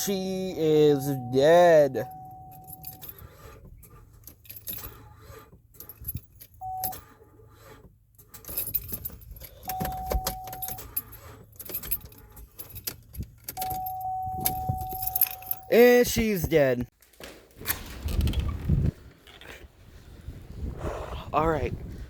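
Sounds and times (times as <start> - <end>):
steady beep: 0.0 - 3.0, 13.8 - 15.8
ignition keys jangling and clicking: 0.0 - 16.9.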